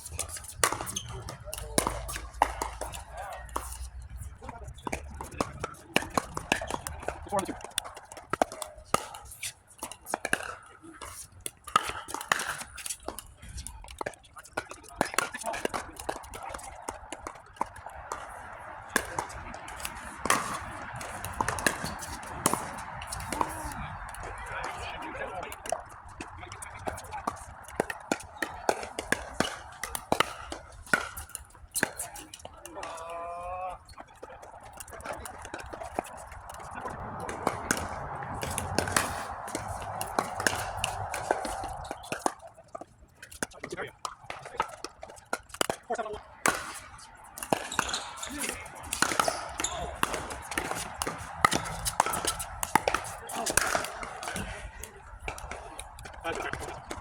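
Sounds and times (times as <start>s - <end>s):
ball bouncing on court: 0.0s - 13.2s, 13.8s - 33.1s, 33.9s - 42.4s, 43.3s - 54.6s
paddles popping against ball: 0.0s - 33.0s, 33.9s - 57.0s
background murmur: 0.0s - 56.9s
paddles striking plastic ball: 34.7s - 42.4s, 43.3s - 54.5s.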